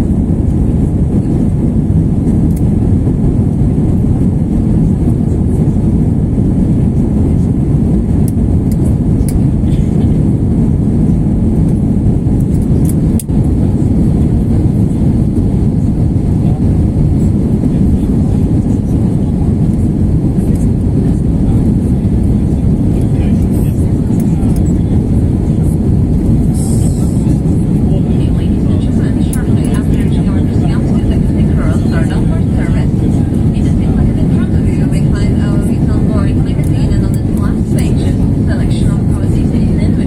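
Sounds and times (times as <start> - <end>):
airplane cabin engine rumble: 0.0 - 40.0.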